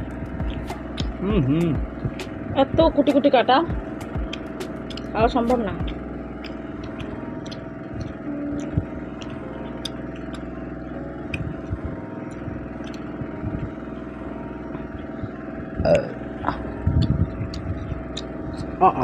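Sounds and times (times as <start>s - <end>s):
steady background hum: 0.0s - 19.0s
chewing clicks and smacks: 0.4s - 1.2s, 3.8s - 10.6s, 11.2s - 13.7s, 16.5s - 18.8s
short vocal sound: 1.2s - 1.9s.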